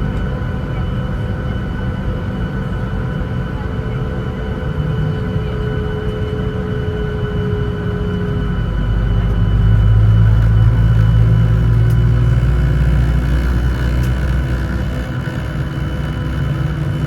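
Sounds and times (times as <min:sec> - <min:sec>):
jet engine rumble and whir: 0:00.0 - 0:17.0.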